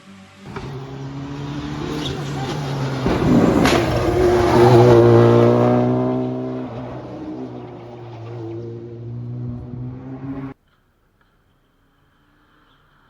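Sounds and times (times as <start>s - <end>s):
rally car passing at speed: 0.2s - 10.6s
sharp crack: 0.5s - 5.2s.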